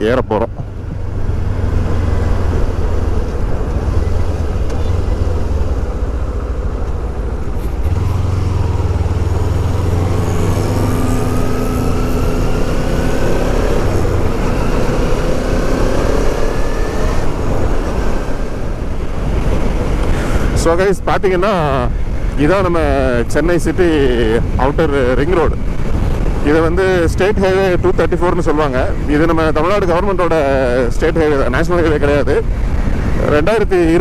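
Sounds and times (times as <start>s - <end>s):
motorcycle engine accelerating: 0.6s - 20.2s
wind noise on microphone: 10.2s - 34.0s.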